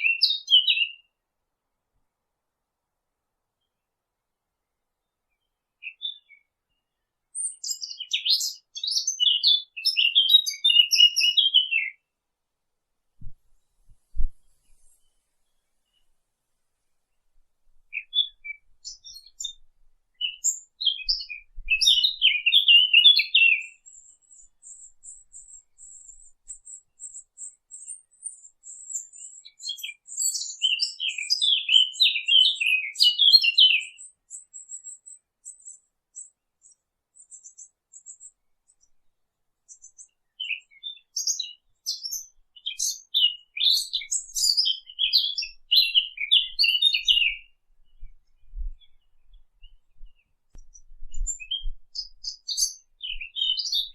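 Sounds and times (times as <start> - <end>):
thin high bird twitter: 7.4 - 12.0, 17.9 - 19.6, 20.2 - 38.9, 39.7 - 53.9
birds chirping: 17.9 - 19.6, 20.2 - 35.8, 39.7 - 53.9.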